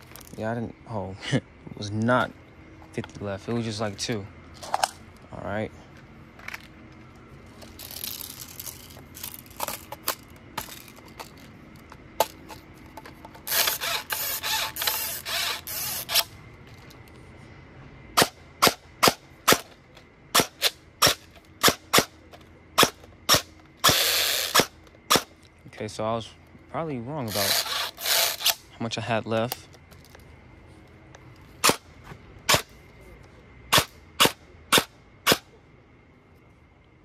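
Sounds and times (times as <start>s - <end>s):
airsoft gun shots: 33.7s - 35.4s.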